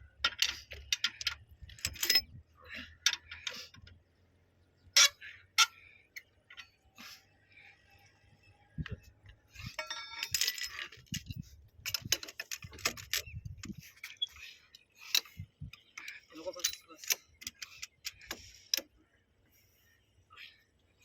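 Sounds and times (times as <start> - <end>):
metal tools clinking and rattling: 0.2 - 2.4, 9.6 - 18.5.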